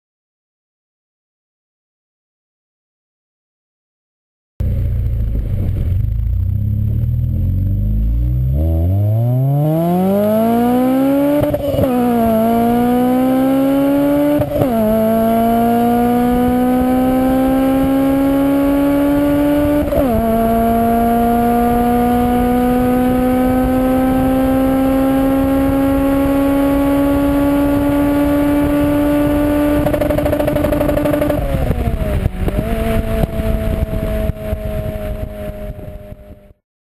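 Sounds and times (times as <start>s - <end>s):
car engine revving and upshifting: 7.2s - 36.1s.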